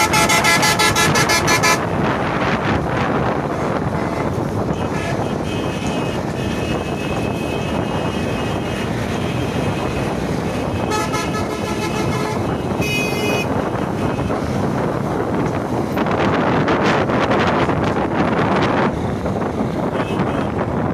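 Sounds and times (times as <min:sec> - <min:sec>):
vehicle horns honking: 0:00.0 - 0:01.9, 0:03.5 - 0:14.6, 0:19.8 - 0:20.6
road traffic: 0:00.0 - 0:20.9.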